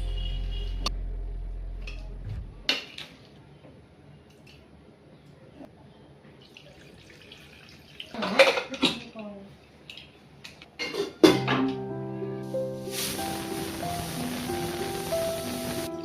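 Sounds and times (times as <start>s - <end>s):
deep low hum: 0.0s - 2.7s.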